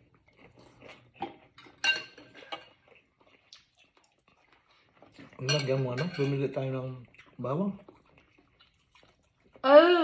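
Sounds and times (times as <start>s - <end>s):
utensils clinking on a bowl: 1.4s - 2.8s, 5.2s - 6.9s.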